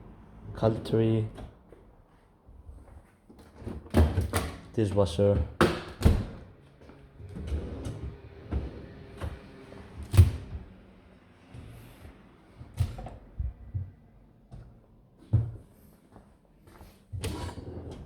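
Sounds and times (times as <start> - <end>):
cupboard doors and drawers shutting: 7.2 - 10.7, 17.2 - 18.0.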